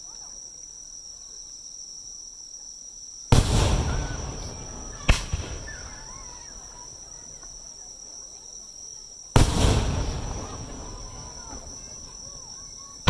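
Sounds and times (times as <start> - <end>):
firework shells bursting: 3.4 - 7.6, 9.4 - 13.0.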